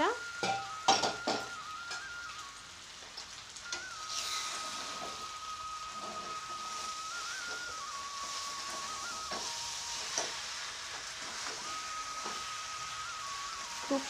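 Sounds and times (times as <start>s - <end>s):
thin high tone: 0.0s - 2.8s, 3.5s - 14.0s
food sizzling in hot oil: 0.0s - 14.0s
spoon knocking against pan: 0.4s - 1.5s.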